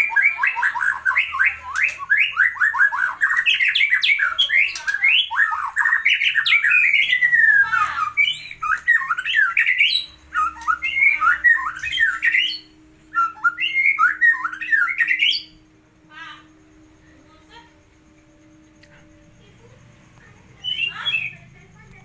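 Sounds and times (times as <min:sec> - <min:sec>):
bird singing whistled phrases: 0:00.0 - 0:15.6, 0:20.6 - 0:21.5.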